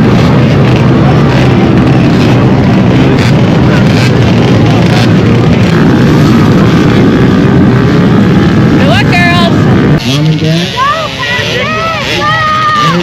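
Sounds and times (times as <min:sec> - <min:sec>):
dirt bike engines running: 0:00.0 - 0:13.0.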